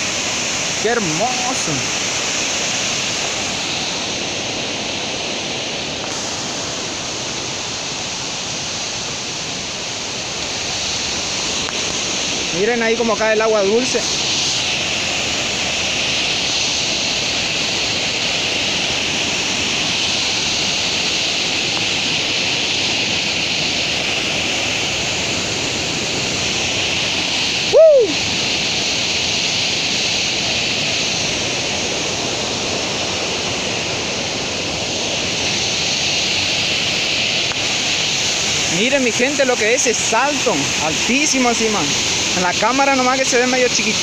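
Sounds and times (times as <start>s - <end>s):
waterfall roar: 0.0s - 44.0s
whistle-like tone: 27.7s - 28.2s.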